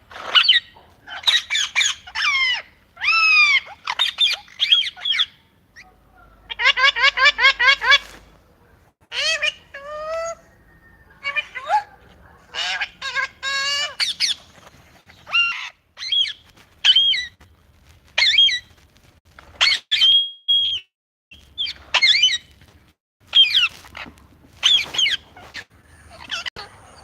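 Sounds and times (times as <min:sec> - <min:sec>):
parrot squawks and chirps: 0:00.1 - 0:08.2, 0:09.1 - 0:17.4, 0:18.2 - 0:18.7, 0:19.6 - 0:20.8, 0:21.4 - 0:22.5, 0:23.3 - 0:27.0
parrot whistle: 0:19.6 - 0:20.9.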